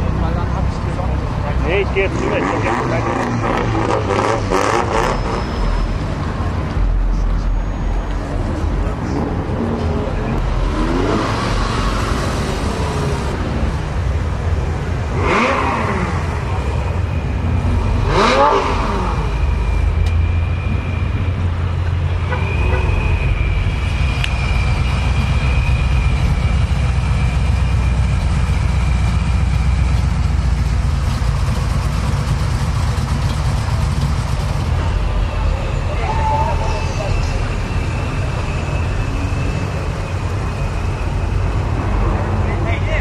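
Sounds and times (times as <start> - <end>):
car engines revving: 0.0 - 43.0
high steady whine: 15.8 - 43.0.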